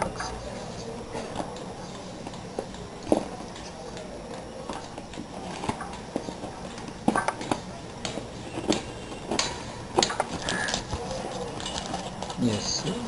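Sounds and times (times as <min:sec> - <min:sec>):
packaging clicks and crinkles: 0:01.1 - 0:13.0.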